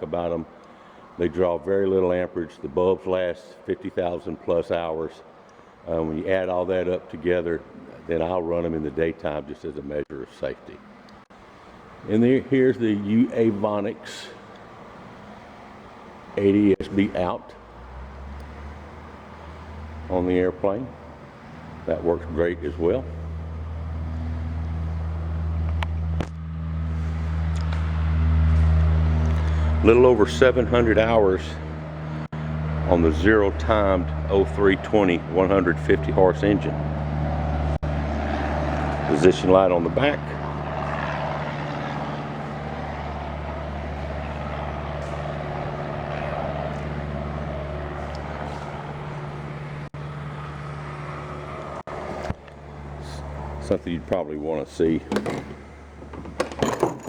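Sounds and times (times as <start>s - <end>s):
low mechanical hum: 9.7s - 57.0s.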